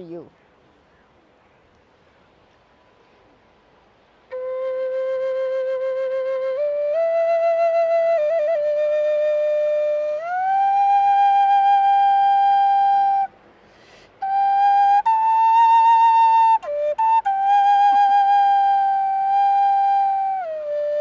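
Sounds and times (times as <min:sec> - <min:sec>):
solo flute playing: 0:04.3 - 0:21.0.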